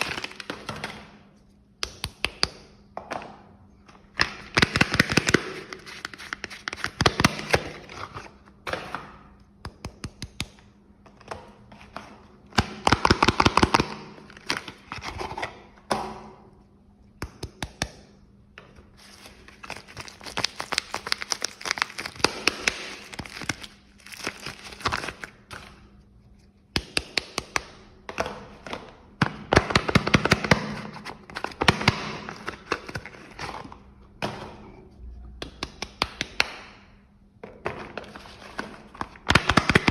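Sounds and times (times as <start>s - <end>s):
wrappers crinkling: 19.0s - 25.5s.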